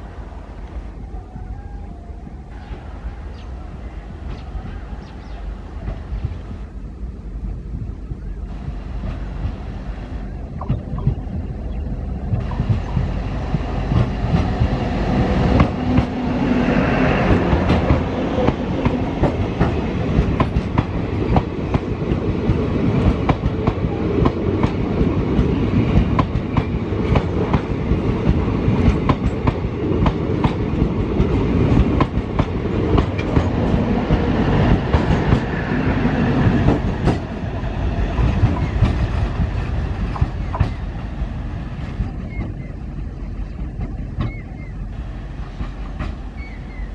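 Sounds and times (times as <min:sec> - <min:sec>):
train coaches rushing past: 0:00.0 - 0:07.2, 0:08.4 - 0:46.9
wheels clicking on track: 0:17.1 - 0:46.9.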